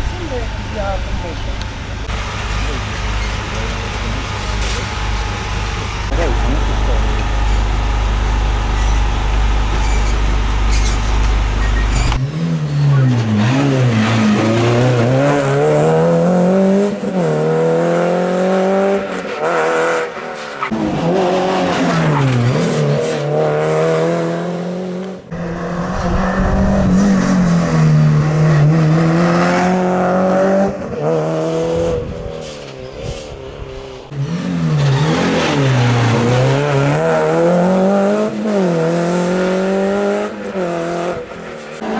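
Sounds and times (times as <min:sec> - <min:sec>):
rally car engines revving: 0:00.0 - 0:41.9
tyre squeal: 0:06.0 - 0:14.6.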